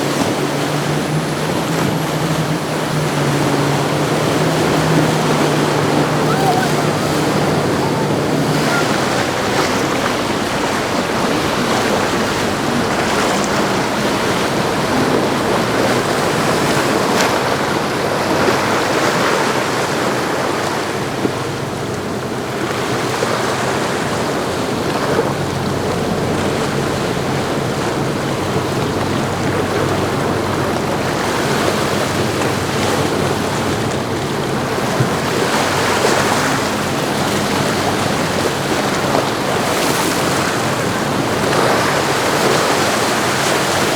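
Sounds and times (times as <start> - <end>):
wind on microphone: 0.0 - 19.6
waves breaking: 0.0 - 43.9
yacht engines droning: 0.0 - 43.9.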